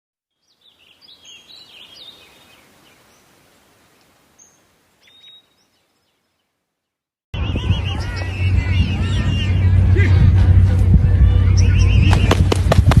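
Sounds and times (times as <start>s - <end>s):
faint outdoor hiss: 0.3s - 7.0s
small birds chirping: 0.3s - 9.7s.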